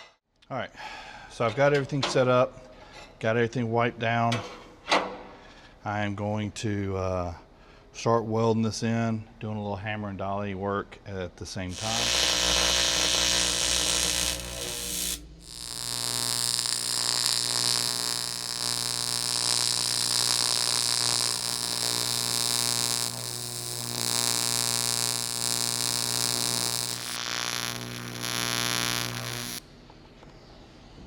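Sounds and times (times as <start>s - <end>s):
low hum: 11.7s - 29.6s
welding arc buzzing hiss: 11.7s - 29.6s.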